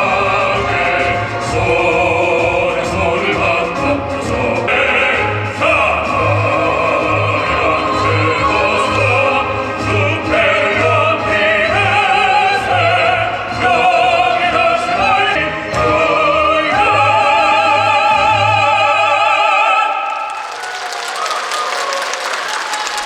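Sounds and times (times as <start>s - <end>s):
applause: 19.9s - 23.0s.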